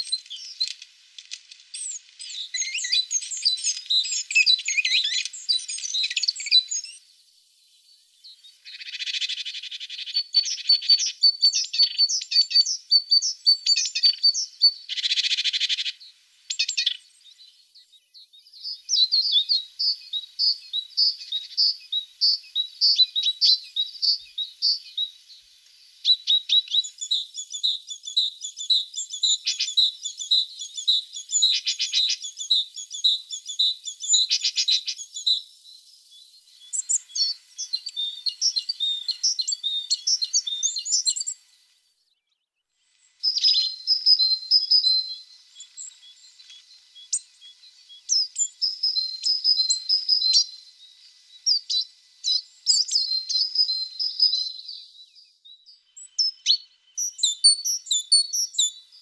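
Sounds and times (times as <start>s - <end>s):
tits chirping: 0.0s - 7.0s, 8.3s - 41.4s, 55.9s - 59.0s.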